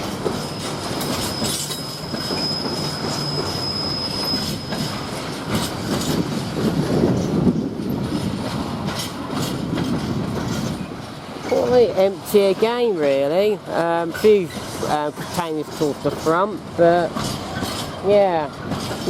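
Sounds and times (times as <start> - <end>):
train wagons rolling past: 0.0 - 19.0
wheels clicking over rail joints: 0.0 - 19.0
high steady wheel squeal: 0.2 - 6.2.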